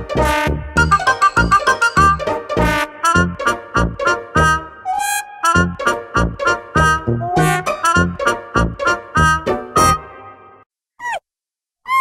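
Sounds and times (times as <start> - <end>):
upbeat swing music with brass: 0.0 - 4.7, 5.5 - 10.1.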